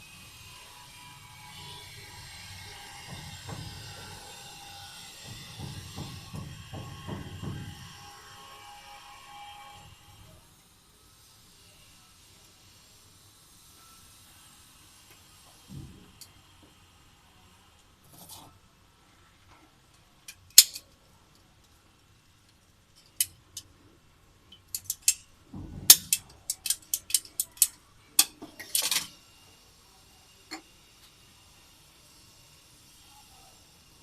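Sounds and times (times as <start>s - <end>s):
clicks and clinks of small objects: 20.3s - 21.0s, 24.5s - 25.3s, 25.9s - 29.2s.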